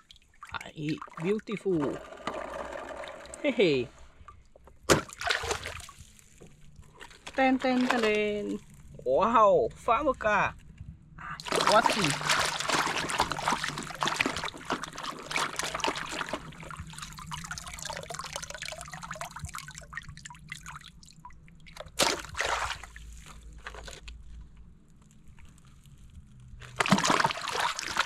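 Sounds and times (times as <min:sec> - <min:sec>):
water splash: 0:00.0 - 0:02.0, 0:04.9 - 0:06.4, 0:11.4 - 0:23.4, 0:26.8 - 0:28.0
water trickling and sloshing: 0:00.0 - 0:03.4, 0:04.0 - 0:09.0, 0:10.8 - 0:28.0.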